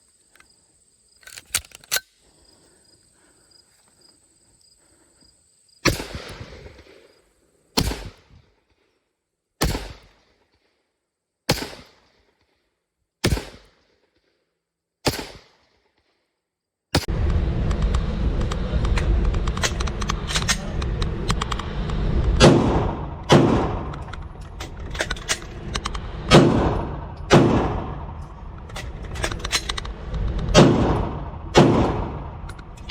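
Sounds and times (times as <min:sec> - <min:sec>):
gun clicks: 0:01.2 - 0:02.2, 0:23.9 - 0:27.4
single gunshots: 0:05.8 - 0:07.0, 0:07.8 - 0:08.3, 0:09.6 - 0:10.2, 0:11.5 - 0:12.0, 0:13.2 - 0:13.7, 0:15.0 - 0:15.6, 0:22.4 - 0:32.7
rapid gunfire: 0:13.2 - 0:13.7, 0:18.0 - 0:32.5
heavy low rumble: 0:17.0 - 0:32.9.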